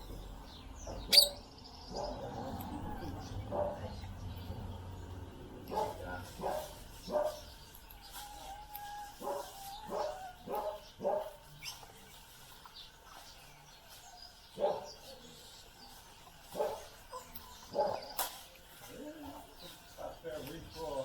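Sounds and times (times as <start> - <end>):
small birds chirping faintly: 0.0 - 21.0
dog barking: 3.5 - 3.9, 5.6 - 7.5, 9.2 - 11.4, 14.6 - 15.0, 16.5 - 18.1.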